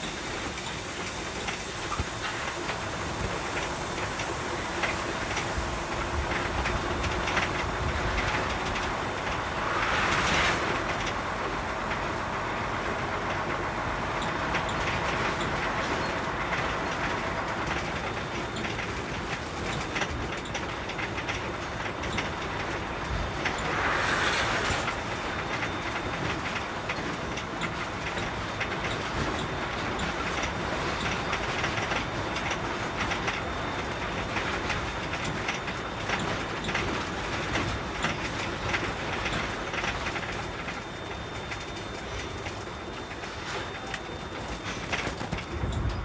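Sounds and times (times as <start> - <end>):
rushing hiss: 0.0 - 5.8, 23.5 - 26.3
truck engine and road noise: 0.0 - 46.0
rattling clatter: 15.8 - 22.8, 38.0 - 46.0.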